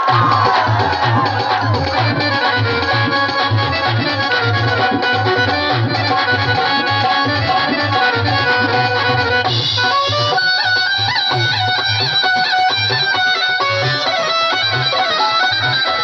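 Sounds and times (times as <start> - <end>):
steady drum beat: 0.0 - 7.6
reedy wind instrument melody: 0.0 - 16.0.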